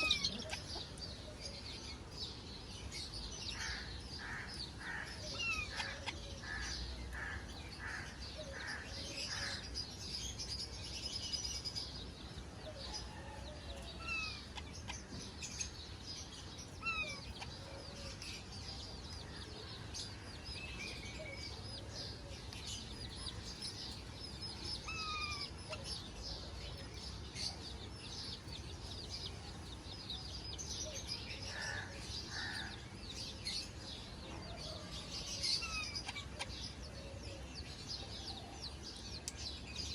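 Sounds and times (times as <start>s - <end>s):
parrots chirping and chattering: 0.0s - 2.1s, 2.9s - 11.8s, 14.0s - 29.8s, 35.3s - 36.8s.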